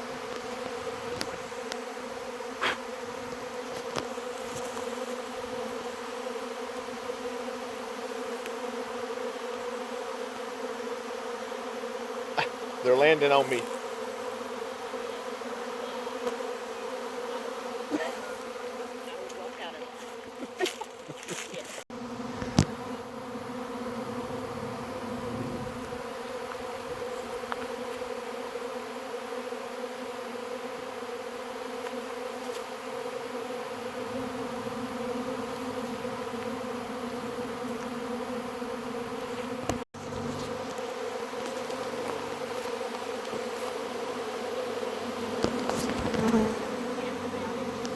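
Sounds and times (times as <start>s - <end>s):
bee swarm humming: 0.0s - 47.9s.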